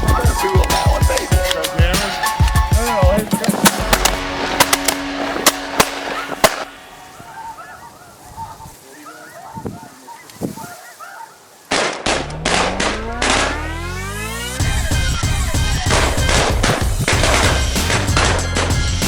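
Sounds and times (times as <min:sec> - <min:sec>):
music: 0:00.0 - 0:07.0, 0:12.7 - 0:19.0
geese honking: 0:00.0 - 0:19.0
shotgun blasts: 0:03.5 - 0:06.9, 0:11.7 - 0:13.6.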